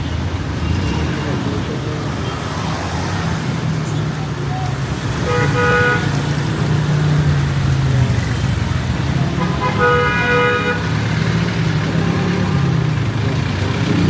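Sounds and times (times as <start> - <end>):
vehicle engines running: 0.0 - 14.0
vehicle horn: 5.2 - 6.4, 9.2 - 11.0.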